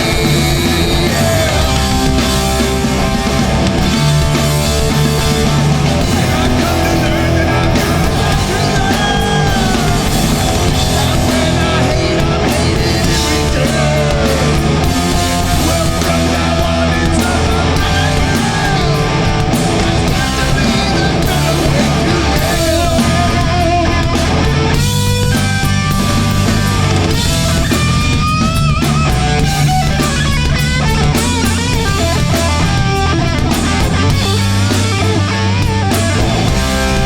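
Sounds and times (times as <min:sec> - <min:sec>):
person singing: 0:00.0 - 0:02.2, 0:05.9 - 0:24.6
bass guitar: 0:00.0 - 0:37.0
distorted electric guitars: 0:00.0 - 0:37.0
drum kit: 0:00.0 - 0:37.0.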